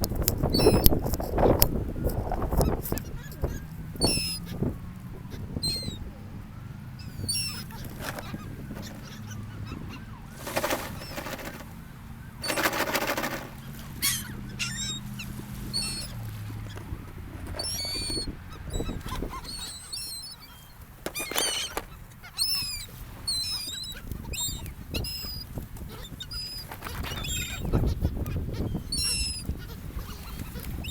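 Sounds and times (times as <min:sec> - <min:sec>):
seagulls squawking: 0:00.4 - 0:30.9.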